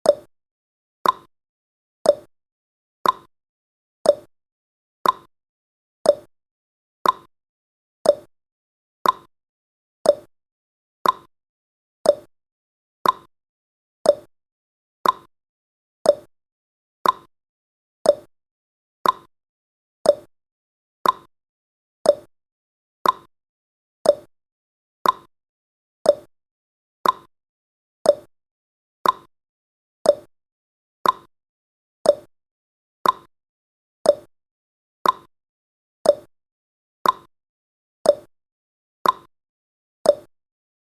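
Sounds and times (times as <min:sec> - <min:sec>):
timer ticking: 0:00.0 - 0:00.3, 0:01.0 - 0:01.3, 0:02.0 - 0:02.3, 0:03.0 - 0:03.3, 0:04.0 - 0:04.3, 0:05.0 - 0:05.3, 0:06.0 - 0:06.3, 0:07.0 - 0:07.3, 0:08.0 - 0:08.3, 0:09.0 - 0:09.3, 0:10.0 - 0:10.3, 0:11.0 - 0:11.3, 0:12.0 - 0:12.3, 0:13.0 - 0:13.3, 0:14.0 - 0:14.3, 0:15.0 - 0:15.3, 0:16.0 - 0:16.3, 0:17.0 - 0:17.3, 0:18.0 - 0:18.3, 0:19.0 - 0:19.3, 0:20.0 - 0:20.3, 0:21.0 - 0:21.3, 0:22.0 - 0:22.3, 0:23.0 - 0:23.3, 0:24.0 - 0:24.3, 0:25.0 - 0:25.3, 0:26.0 - 0:26.3, 0:27.0 - 0:27.3, 0:28.0 - 0:28.3, 0:29.0 - 0:29.3, 0:30.0 - 0:30.3, 0:31.0 - 0:31.3, 0:32.0 - 0:32.3, 0:33.0 - 0:33.3, 0:34.0 - 0:34.3, 0:35.0 - 0:35.3, 0:36.0 - 0:36.3, 0:37.0 - 0:37.3, 0:38.0 - 0:38.3, 0:39.0 - 0:39.3, 0:40.1 - 0:40.3.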